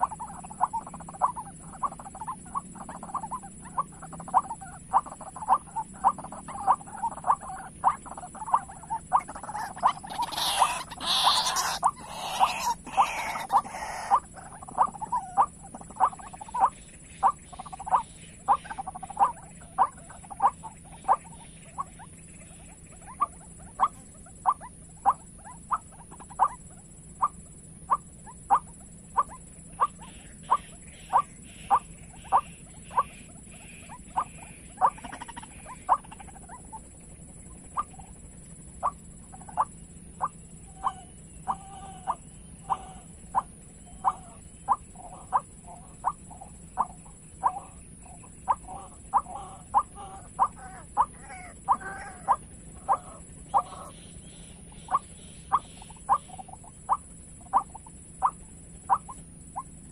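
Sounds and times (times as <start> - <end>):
waterhen harsh calls: 0.0 - 59.9.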